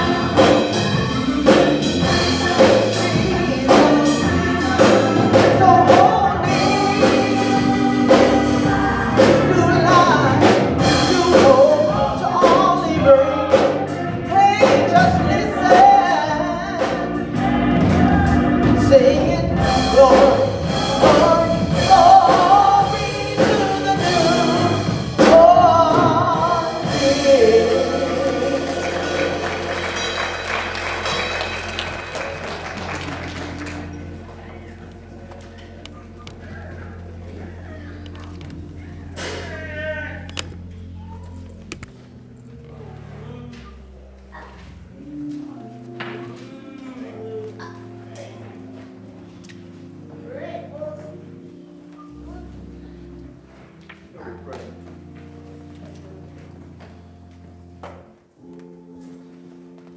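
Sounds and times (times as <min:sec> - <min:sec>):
gospel singing with instrumental backing: 0:00.0 - 0:41.9.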